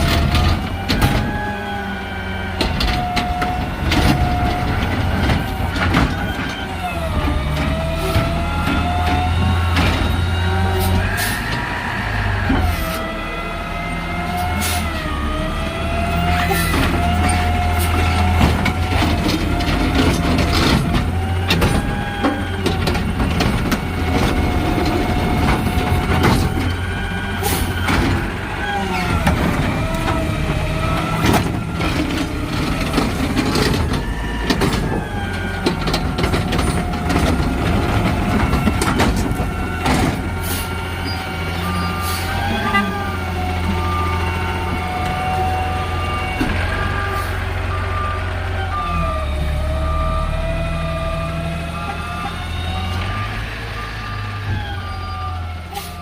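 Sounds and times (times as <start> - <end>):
diesel engine running: 0.0 - 56.0
clanks and knocks: 2.6 - 10.3, 16.7 - 28.4, 29.0 - 40.4.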